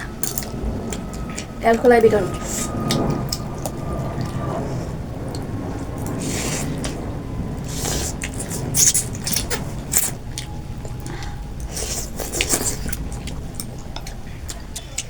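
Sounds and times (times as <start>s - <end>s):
chewing with smacking clicks: 0.2s - 1.8s, 8.2s - 15.0s
slurping noodles and broth: 5.3s - 7.0s, 7.6s - 10.2s.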